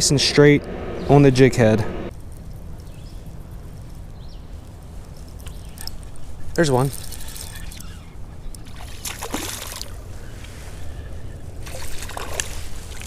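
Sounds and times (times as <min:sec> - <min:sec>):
steady low rumble: 0:00.0 - 0:06.6
water splashing and sloshing: 0:04.7 - 0:10.8, 0:11.5 - 0:13.0.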